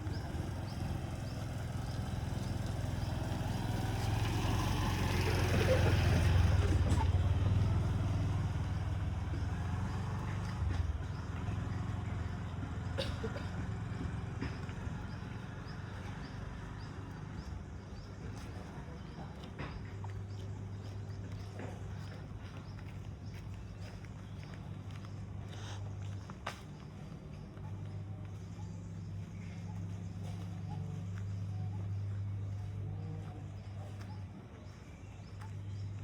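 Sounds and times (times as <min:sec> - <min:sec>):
vehicle driving past: 0:00.0 - 0:22.5.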